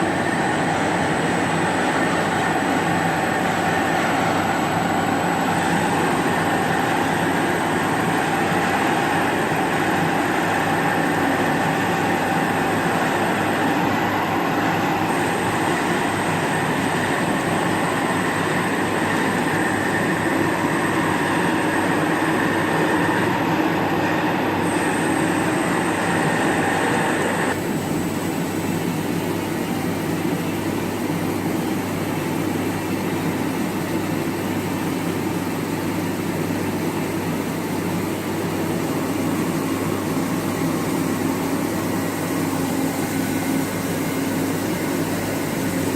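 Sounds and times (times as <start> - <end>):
thin high machine whine: 0.0 - 27.6
lathe low hum: 0.0 - 27.9.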